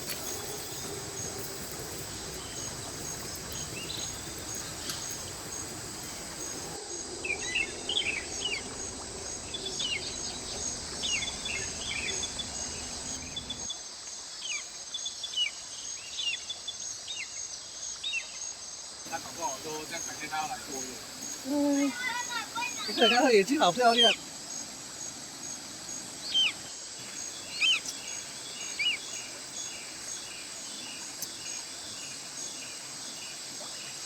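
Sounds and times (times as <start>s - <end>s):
birds chirping: 0.0s - 13.6s, 19.1s - 31.5s
insects trilling: 0.0s - 16.0s, 16.8s - 34.0s
stream hissing: 0.0s - 34.0s.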